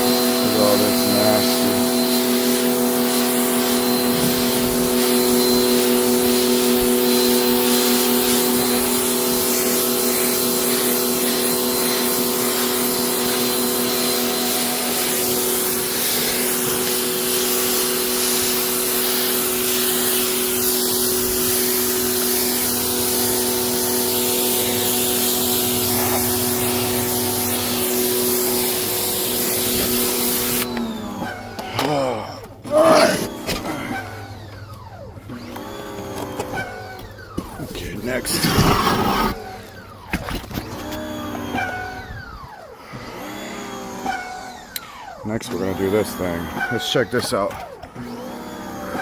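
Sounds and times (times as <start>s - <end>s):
water jet spraying: 0.0s - 30.7s, 37.7s - 39.4s
pressure washer motor hum: 0.0s - 49.0s.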